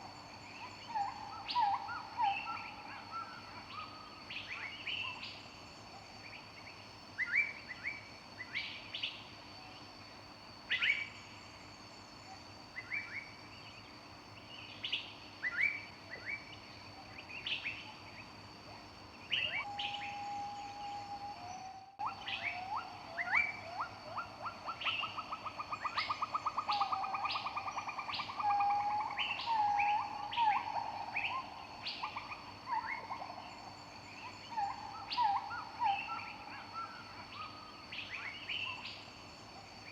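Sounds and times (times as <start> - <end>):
songbirds chirping: 0.0 - 39.9
faint steady high tone: 19.4 - 23.9.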